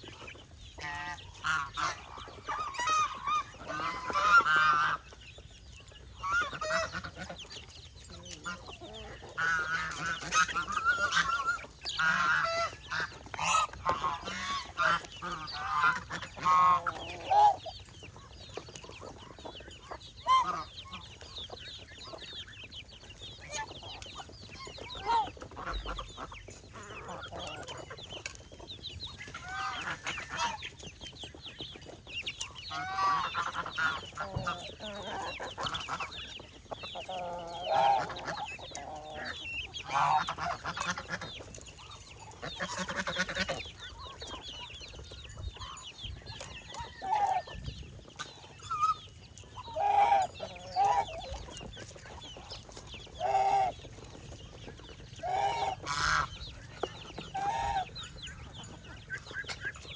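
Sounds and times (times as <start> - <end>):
chickens clucking: 0.0 - 59.9
geese honking: 0.8 - 5.2, 6.2 - 17.7, 20.2 - 21.0, 29.1 - 30.7, 32.7 - 44.6, 48.2 - 54.3, 55.2 - 59.9.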